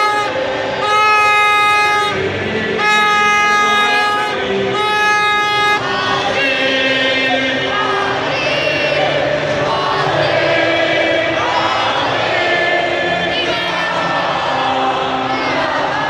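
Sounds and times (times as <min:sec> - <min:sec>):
horn blasts: 0:00.0 - 0:07.4
crowd noise: 0:00.0 - 0:16.0
crowd singing and chanting: 0:00.0 - 0:16.0.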